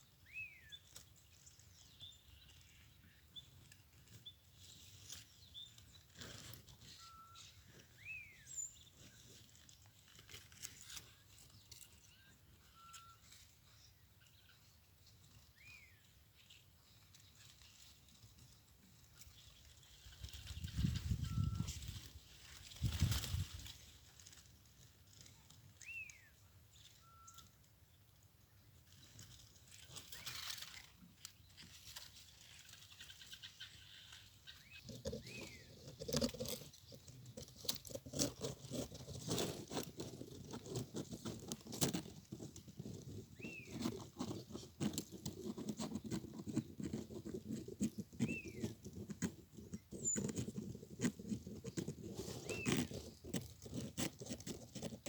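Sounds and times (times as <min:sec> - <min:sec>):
pattering and crackling clicks: 0:34.1 - 0:55.0.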